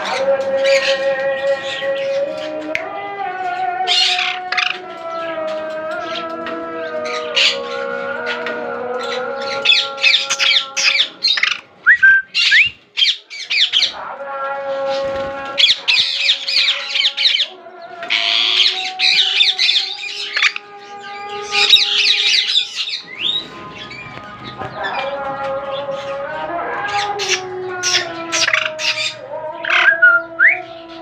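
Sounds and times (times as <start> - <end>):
parakeets squawking: 0.0 - 2.8, 3.5 - 5.4, 6.0 - 14.0, 14.8 - 31.0
background music held tones: 13.9 - 31.0.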